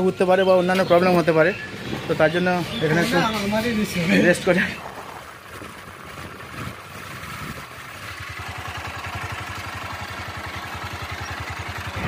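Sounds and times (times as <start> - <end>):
motorcycle engine running: 0.0 - 12.0
wind noise: 4.7 - 7.8.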